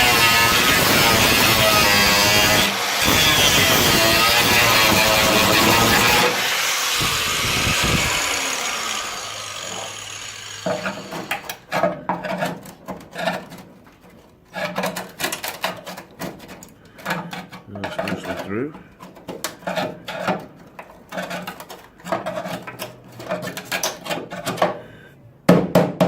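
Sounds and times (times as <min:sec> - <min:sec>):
angle grinder spinning down: 0:00.0 - 0:11.6
metallic knocks and scraping: 0:00.2 - 0:24.8.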